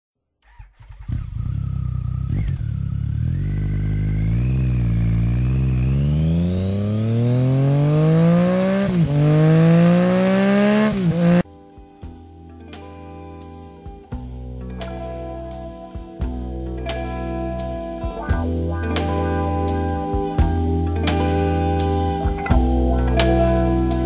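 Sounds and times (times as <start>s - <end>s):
motorcycle engine accelerating: 0.4s - 11.4s
music: 11.4s - 24.0s.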